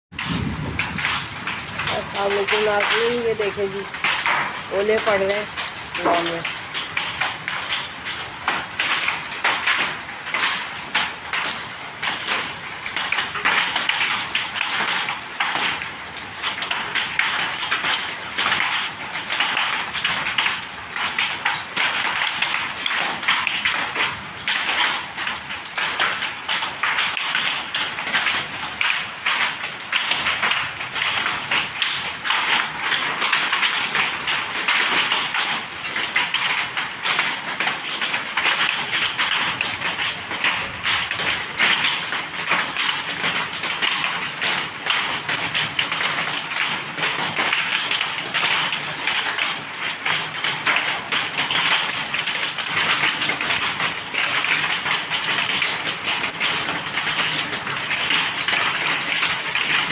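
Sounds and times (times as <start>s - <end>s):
hailstones tapping hard surfaces: 0.1s - 59.9s
heavy rain hiss: 0.2s - 6.5s.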